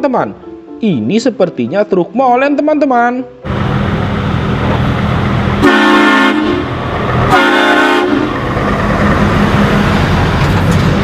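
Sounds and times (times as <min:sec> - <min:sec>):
engine rumble: 0:03.4 - 0:11.0
heavy vehicle horn honking: 0:05.6 - 0:08.4.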